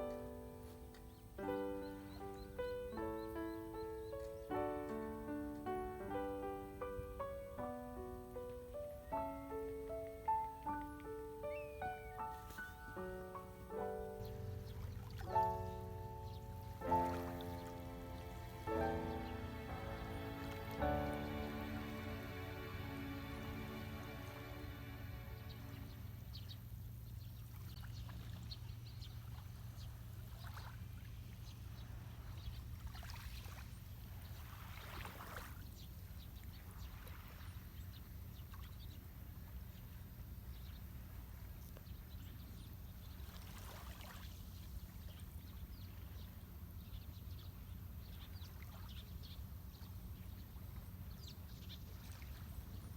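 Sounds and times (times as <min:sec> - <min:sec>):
lake waves washing on shore: 0:08.4 - 0:26.3, 0:27.7 - 0:39.4, 0:43.1 - 0:46.1.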